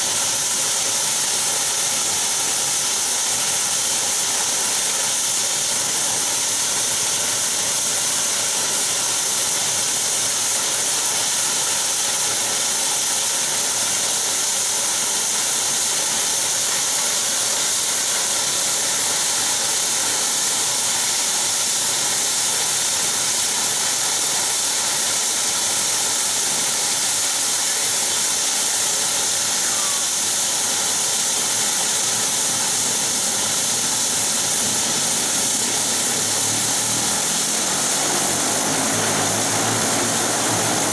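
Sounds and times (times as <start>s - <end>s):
turboprop engines whining: 31.5s - 40.9s.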